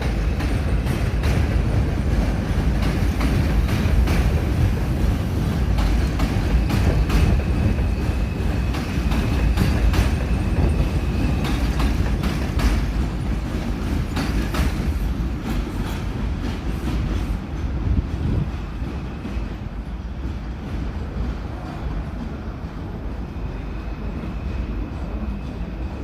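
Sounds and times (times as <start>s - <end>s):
wheels clacking over rail joints: 0.0s - 19.5s
subway train rumbling: 0.0s - 26.0s.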